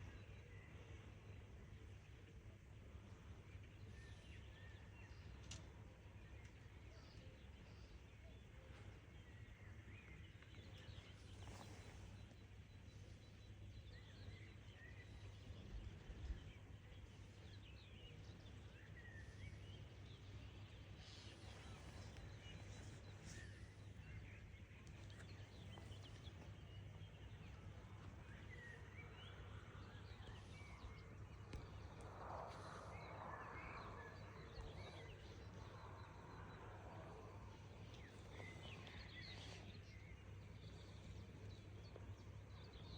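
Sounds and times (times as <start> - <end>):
small birds chirping: 3.6 - 42.9
steady low hum: 19.2 - 42.9.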